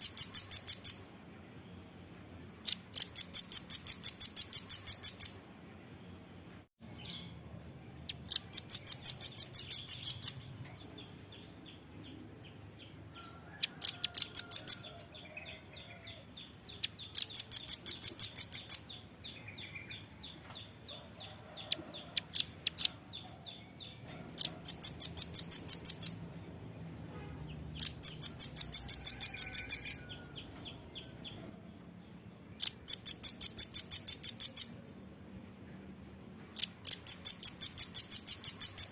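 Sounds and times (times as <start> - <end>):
nuthatch calling in rapid bursts: 0.0 - 1.0, 2.6 - 5.4, 8.1 - 10.5, 13.6 - 14.9, 16.8 - 19.0, 24.4 - 26.2, 27.7 - 30.2, 32.6 - 34.8, 36.6 - 38.9.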